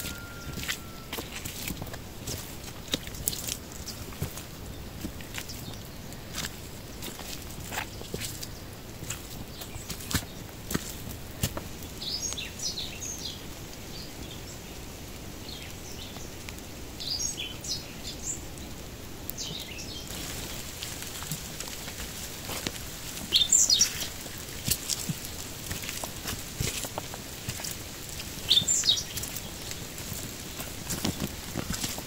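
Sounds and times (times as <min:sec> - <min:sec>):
light rain hiss: 0:00.0 - 0:32.0
small birds chirping: 0:00.0 - 0:32.0.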